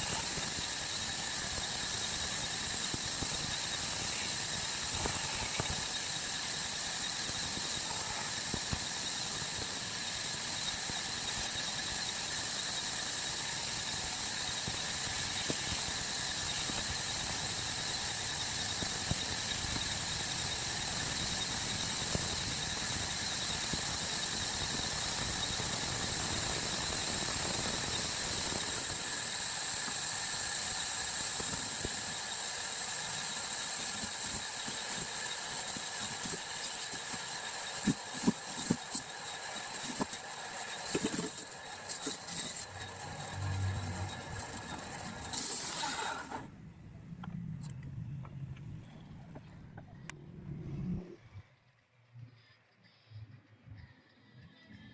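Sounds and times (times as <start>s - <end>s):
machinery running: 25.1s - 51.4s
saw squealing through wood: 38.6s - 46.5s.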